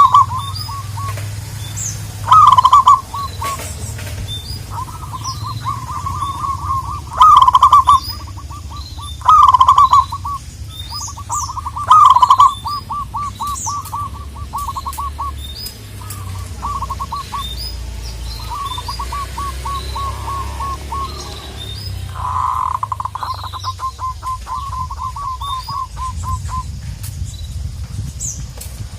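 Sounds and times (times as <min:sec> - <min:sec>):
doves cooing: 0:00.0 - 0:26.8.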